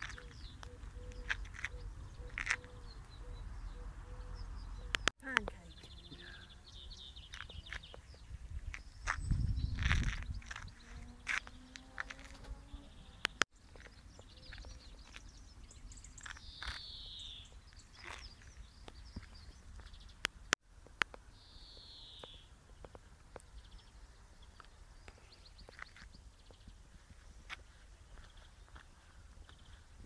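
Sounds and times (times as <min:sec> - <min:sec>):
sharp clicks: 0:04.9 - 0:05.5
faint rapid bird chirps: 0:12.5 - 0:20.2.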